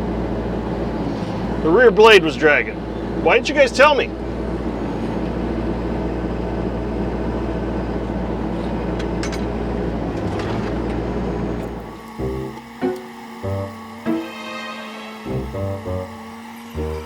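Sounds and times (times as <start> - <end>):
excavator diesel engine running: 0.0 - 17.0
faint metal clanks: 8.6 - 11.0.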